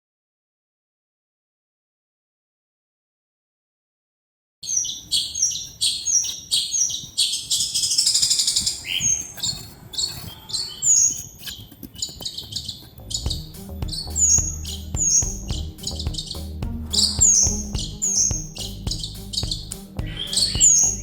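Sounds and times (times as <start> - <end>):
birds chirping and trilling: 4.6 - 21.0.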